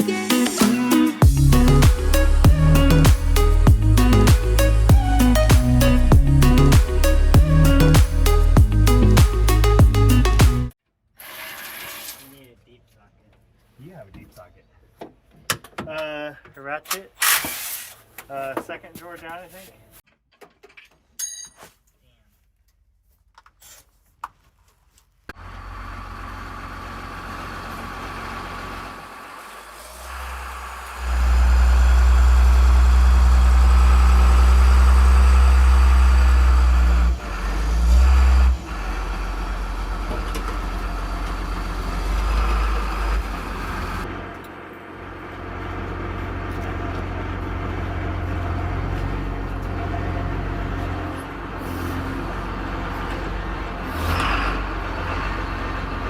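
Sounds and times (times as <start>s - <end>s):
vehicle engine droning: 1.2s - 10.8s, 25.4s - 56.0s.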